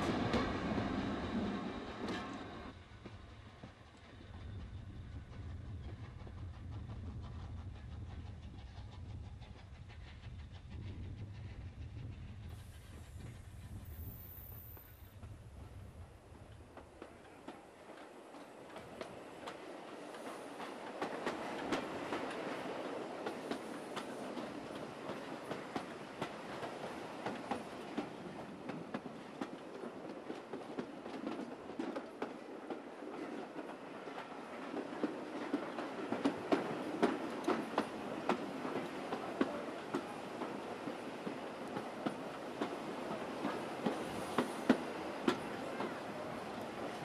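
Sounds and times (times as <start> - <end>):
train rumbling: 0.0 - 47.0.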